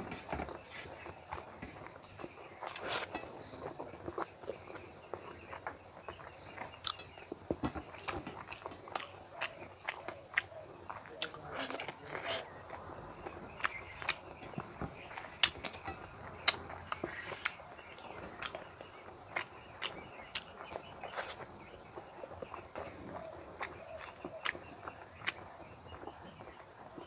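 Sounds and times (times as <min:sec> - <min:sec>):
wet chewing and lip smacks: 0:08.0 - 0:12.8, 0:19.3 - 0:21.5, 0:22.5 - 0:26.1.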